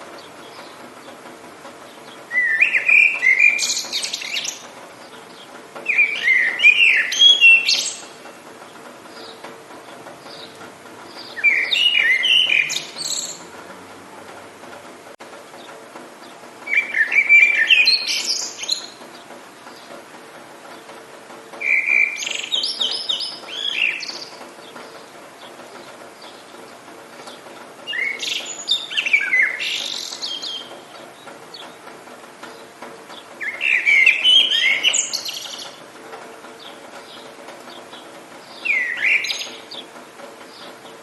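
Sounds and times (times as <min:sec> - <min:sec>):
songbird chirping and whistling: 0:02.1 - 0:04.6, 0:05.8 - 0:08.2, 0:11.2 - 0:13.4, 0:16.7 - 0:19.0, 0:21.6 - 0:24.4, 0:27.9 - 0:30.7, 0:33.4 - 0:35.8, 0:38.5 - 0:39.9.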